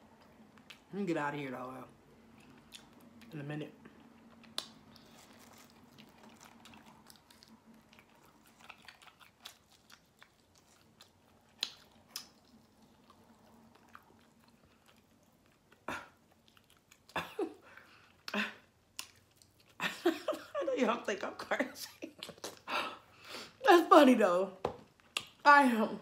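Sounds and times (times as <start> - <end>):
wet chewing and mouth clicks: 2.2 - 19.8, 22.1 - 22.7, 24.9 - 25.4.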